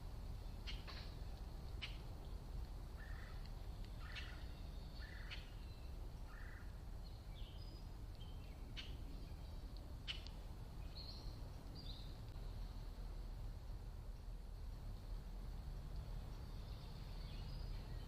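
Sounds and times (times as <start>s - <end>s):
low background rumble: 0.0s - 18.0s
birds chirping: 3.0s - 12.8s, 15.7s - 18.0s.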